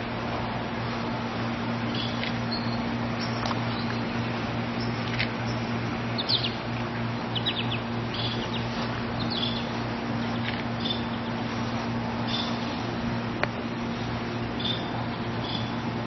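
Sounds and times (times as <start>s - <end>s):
steady low hum: 0.0s - 16.0s
bird chirping: 1.9s - 4.1s, 6.2s - 6.6s, 7.3s - 11.4s, 14.6s - 15.8s.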